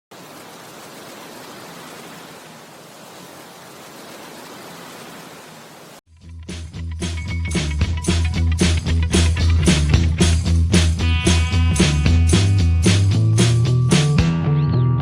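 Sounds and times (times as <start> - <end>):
music with heavy beat: 6.5 - 14.4.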